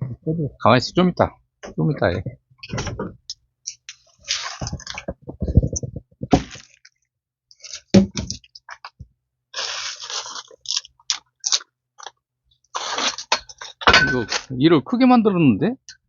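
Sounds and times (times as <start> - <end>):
wood knocking and cracking: 4.6 - 6.8.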